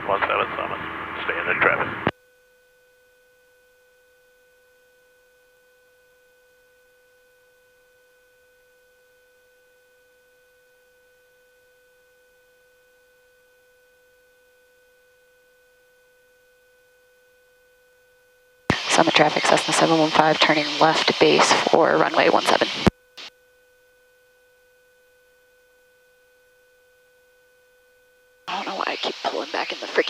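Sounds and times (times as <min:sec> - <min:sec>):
faint steady electronic tone: 0:01.3 - 0:30.0.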